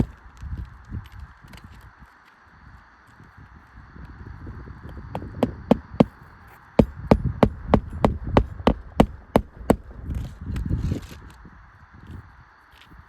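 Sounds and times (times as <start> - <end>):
hammer blows: 5.2 - 6.2, 6.8 - 10.2.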